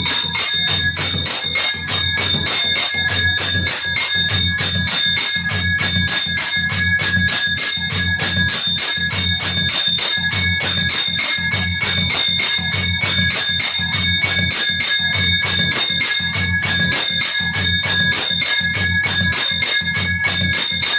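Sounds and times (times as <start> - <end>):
low pulsing beat: 0.0 - 13.3
bell ringing rapidly: 0.0 - 20.9.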